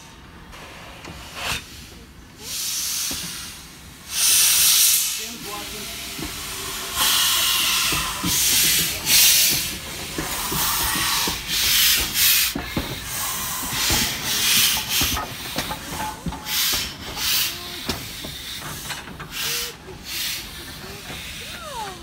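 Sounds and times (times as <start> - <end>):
steam locomotive hissing steam: 0.0 - 22.0.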